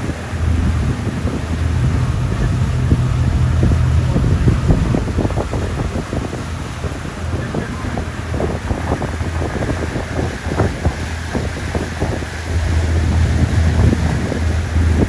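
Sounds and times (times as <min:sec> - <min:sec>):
boat low rumble: 0:00.0 - 0:15.0
wind buffeting microphone: 0:00.0 - 0:15.0.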